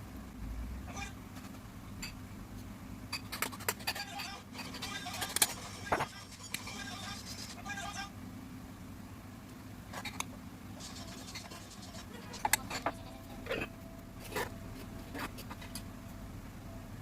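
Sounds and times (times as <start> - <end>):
steady low hum: 0.0 - 17.0
objects scraping and clicking: 10.8 - 15.9.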